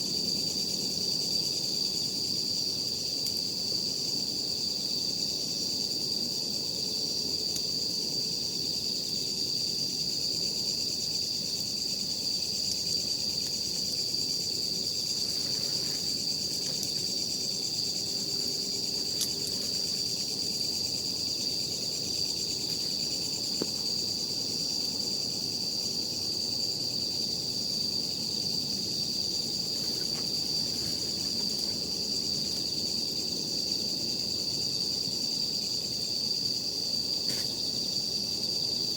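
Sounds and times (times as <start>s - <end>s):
campfire crackles: 0.0s - 5.5s, 6.2s - 24.6s, 27.4s - 33.8s
night insects trilling: 0.0s - 38.9s.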